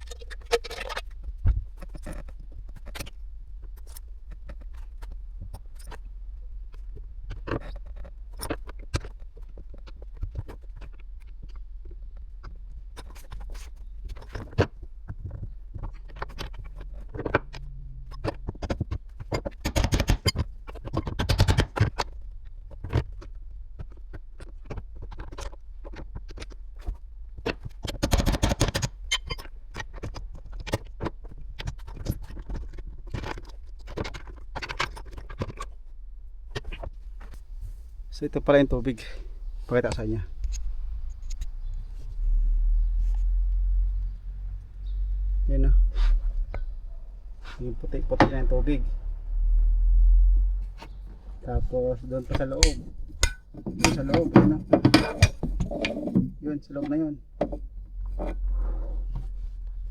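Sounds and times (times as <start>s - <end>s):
hand tools and metal parts clinking: 52.0s - 58.4s.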